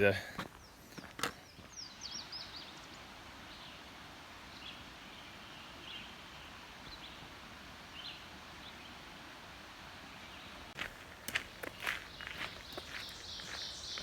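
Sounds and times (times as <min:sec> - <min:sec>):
low background hiss: 0:00.0 - 0:14.0
birds chirping: 0:10.1 - 0:14.0.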